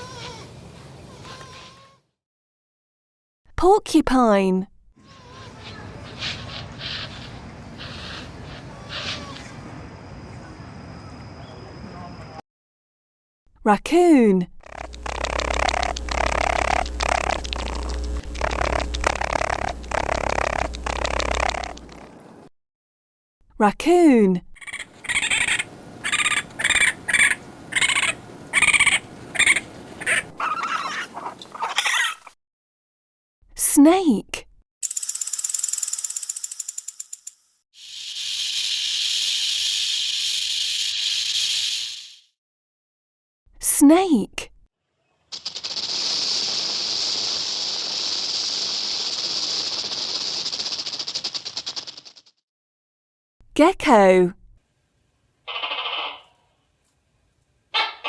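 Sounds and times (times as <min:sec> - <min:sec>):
raccoon chittering calls: 0:14.6 - 0:22.1, 0:24.6 - 0:32.2, 0:55.5 - 0:56.4, 0:57.8 - 0:58.0
rattlesnake rattling: 0:14.6 - 0:22.1, 0:34.8 - 0:42.3, 0:45.3 - 0:52.4.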